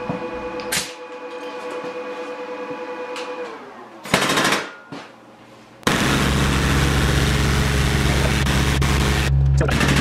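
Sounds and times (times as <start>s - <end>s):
air compressor running: 5.8s - 10.0s.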